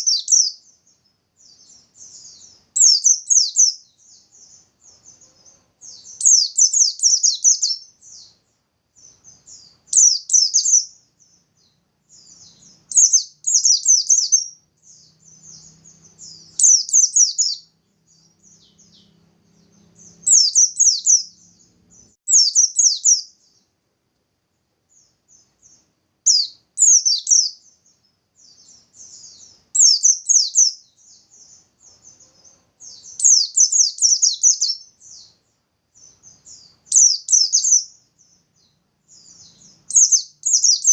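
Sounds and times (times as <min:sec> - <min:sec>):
bird singing rapid chirps: 0:00.0 - 0:23.7, 0:24.9 - 0:40.9.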